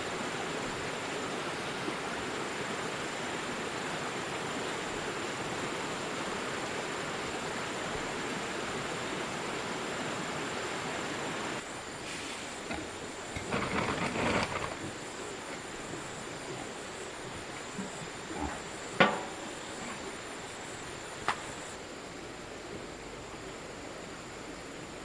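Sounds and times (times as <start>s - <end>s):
faint high hiss: 0.0s - 25.0s
handling and rustling noise: 12.0s - 17.0s.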